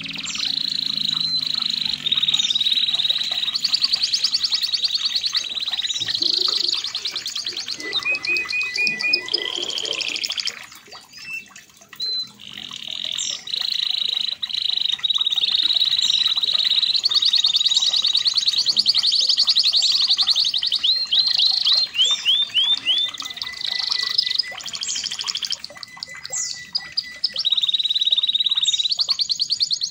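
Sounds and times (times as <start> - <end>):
canary singing trills: 0.0 - 29.9.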